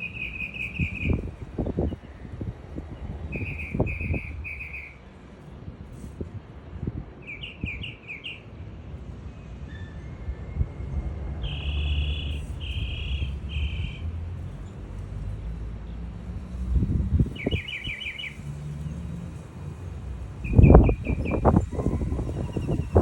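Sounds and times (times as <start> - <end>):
small birds chirping: 0.0 - 2.0, 3.3 - 5.0, 7.2 - 8.5, 17.2 - 18.5, 20.4 - 21.5.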